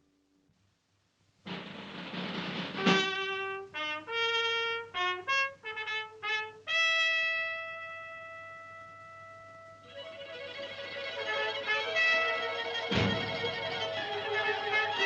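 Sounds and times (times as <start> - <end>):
trumpet fanfare: 2.5 - 15.0
shimmering strings: 9.8 - 15.0.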